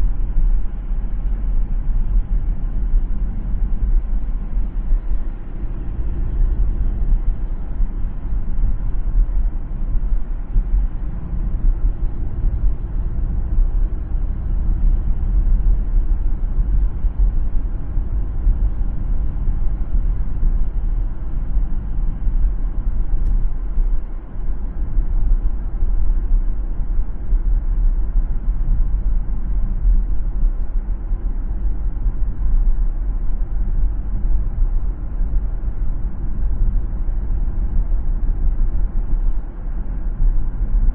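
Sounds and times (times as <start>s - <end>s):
car engine: 0.0s - 24.8s.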